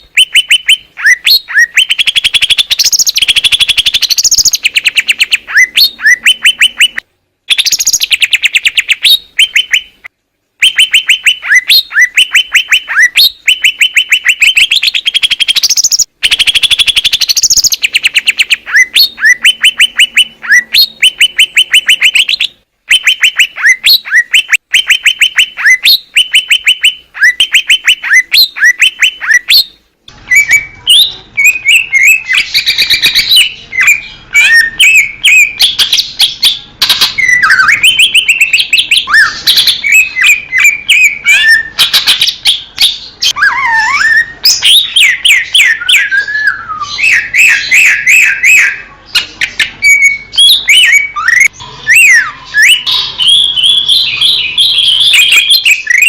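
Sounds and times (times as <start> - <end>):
bird singing rapid chirps: 0.0 - 56.0
bird warbling whistles: 30.3 - 42.4, 43.2 - 56.0.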